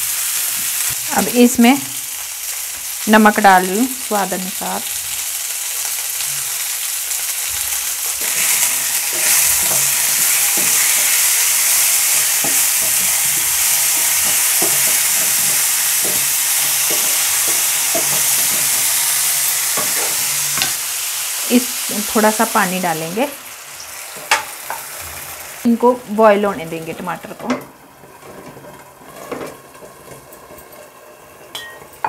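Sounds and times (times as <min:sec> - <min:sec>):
vegetables sizzling in oil: 0:00.0 - 0:32.0
spatula scraping and knocking pan: 0:08.0 - 0:20.8, 0:27.4 - 0:32.0.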